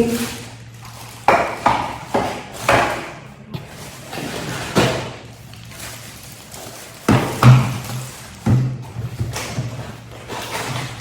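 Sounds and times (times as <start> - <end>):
packaging rustling: 0.0 - 1.3, 3.7 - 11.0
objects knocking and clattering: 0.0 - 11.0.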